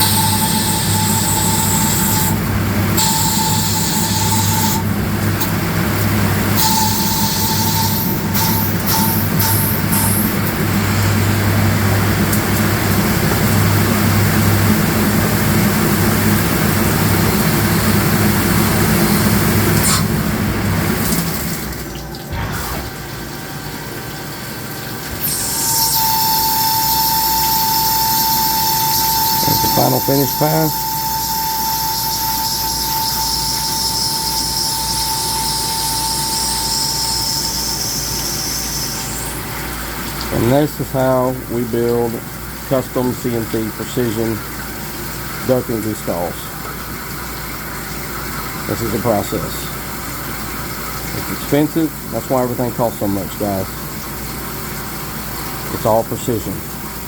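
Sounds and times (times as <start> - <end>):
lathe cutting hiss: 0.0 - 4.9, 6.5 - 11.2, 25.2 - 39.4
lathe motor hum: 0.0 - 20.8, 25.1 - 39.2.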